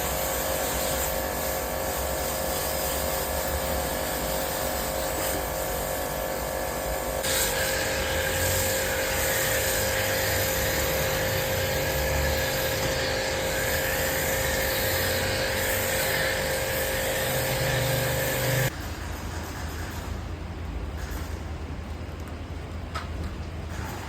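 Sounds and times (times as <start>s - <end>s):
cleaning machine motor whine: 0.0s - 18.7s
machine hiss: 0.0s - 20.1s.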